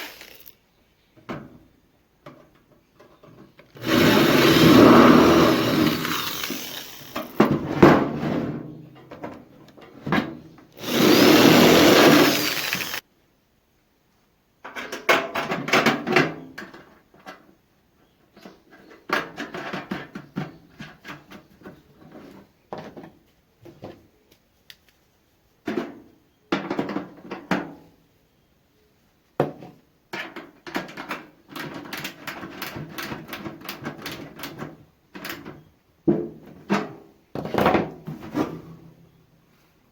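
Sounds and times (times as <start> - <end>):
power tool running: 0.0 - 0.5, 3.8 - 7.5, 10.8 - 13.0.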